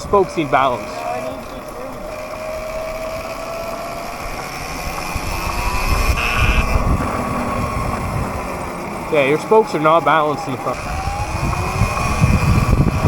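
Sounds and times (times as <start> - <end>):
electric motorbike motor whining: 0.0 - 13.0
wind rumble on microphone: 3.2 - 9.1, 10.8 - 13.0.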